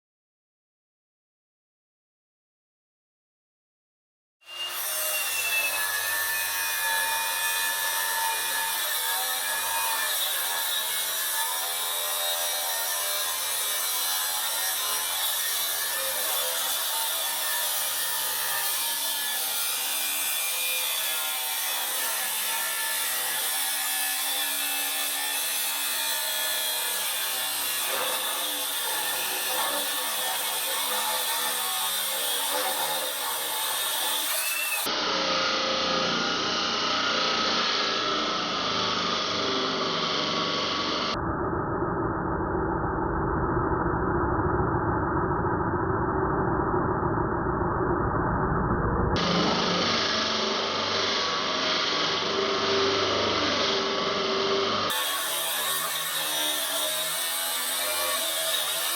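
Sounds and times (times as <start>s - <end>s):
angle grinder grinding steel: 4.5s - 41.2s, 49.2s - 58.9s
deep muffled grinder drone: 35.0s - 54.9s.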